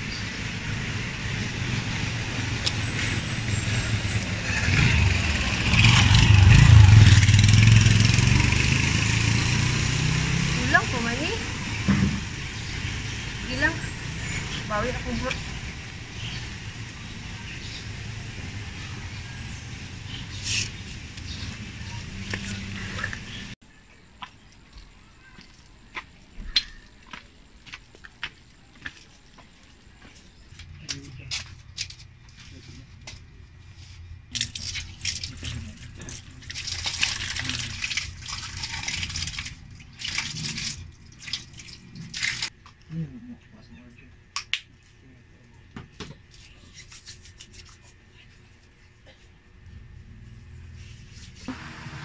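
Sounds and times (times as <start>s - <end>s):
distant road traffic: 0.0s - 46.6s, 47.4s - 52.0s
water splashing on concrete floor: 34.3s - 42.6s.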